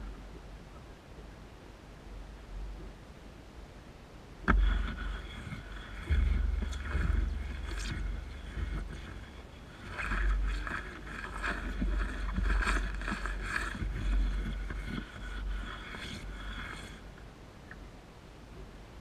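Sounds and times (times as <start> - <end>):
windscreen wiper scraping glass: 4.5 - 17.1.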